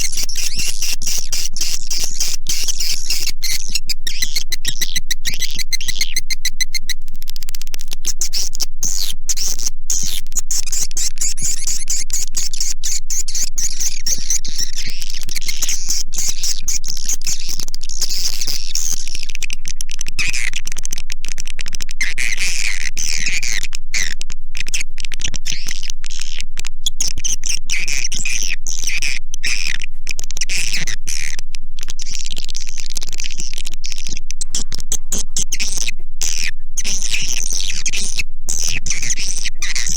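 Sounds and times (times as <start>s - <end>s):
swiftlet calls twittering: 0.0s - 7.0s, 8.0s - 19.1s
rapid clicks: 0.0s - 10.8s.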